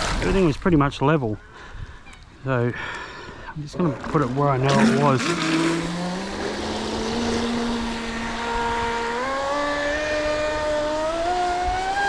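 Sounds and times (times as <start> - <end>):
electric motor whining: 4.0 - 12.0.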